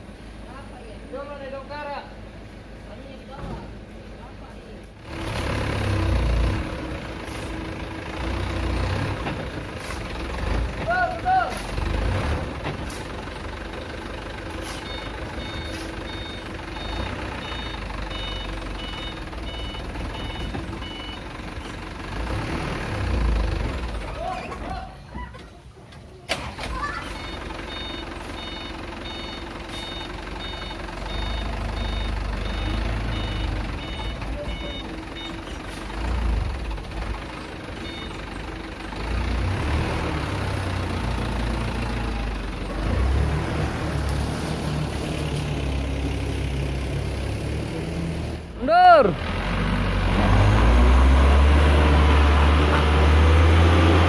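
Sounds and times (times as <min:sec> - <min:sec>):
truck engine running: 0:00.0 - 0:54.0
reversing alarm beeping: 0:14.6 - 0:21.3, 0:27.1 - 0:35.6, 0:37.8 - 0:38.2.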